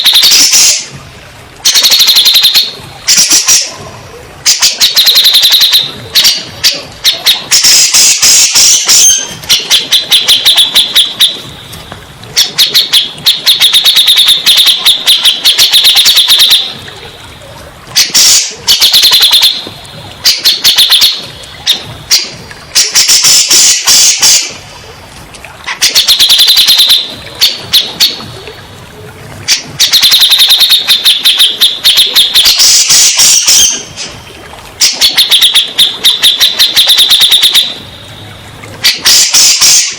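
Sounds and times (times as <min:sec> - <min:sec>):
bulbul singing chattering notes: 0:04.4 - 0:11.8, 0:12.4 - 0:16.9, 0:17.9 - 0:24.7, 0:25.7 - 0:28.6, 0:29.5 - 0:34.2, 0:34.8 - 0:37.8.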